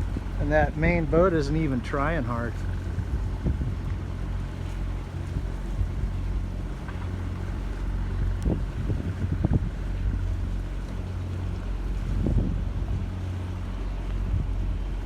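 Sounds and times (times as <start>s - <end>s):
diesel engine idling drone: 0.0s - 15.0s.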